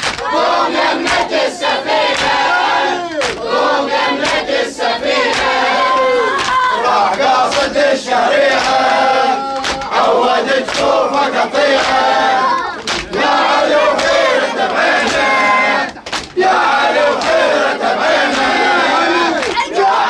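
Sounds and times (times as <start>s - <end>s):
crowd chanting in unison: 0.0s - 20.0s.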